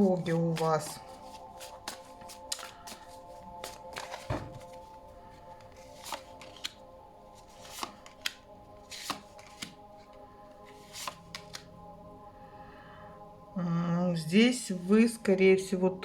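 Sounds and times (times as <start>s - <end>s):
cards rustling and flicking: 0.0s - 11.7s
quiet background music: 0.0s - 16.0s.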